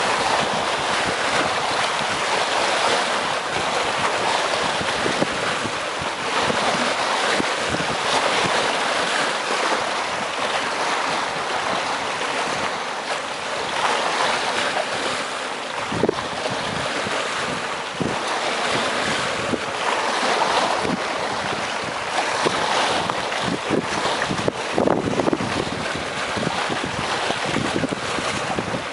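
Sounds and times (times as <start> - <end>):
waves washing against rocks: 0.0 - 28.9.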